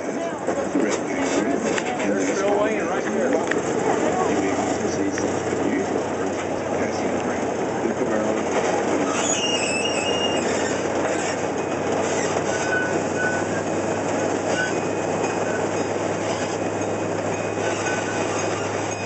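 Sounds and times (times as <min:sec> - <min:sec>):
train wheels rumbling on rails: 0:00.0 - 0:19.0
faint high squeals: 0:09.0 - 0:11.4, 0:12.0 - 0:13.7, 0:14.4 - 0:19.0.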